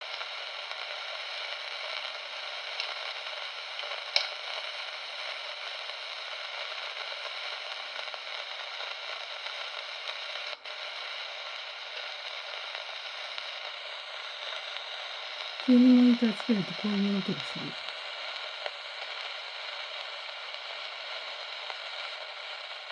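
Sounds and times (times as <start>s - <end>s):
crackling hissing static: 0.0s - 22.9s.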